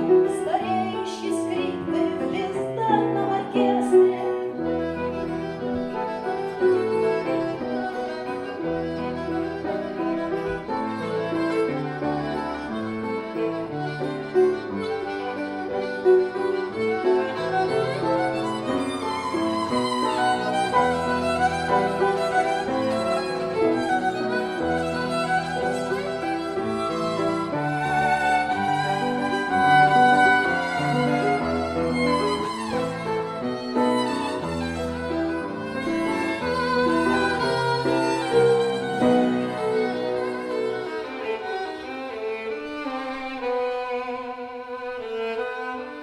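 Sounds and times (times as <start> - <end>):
violin melody: 0.0 - 46.0.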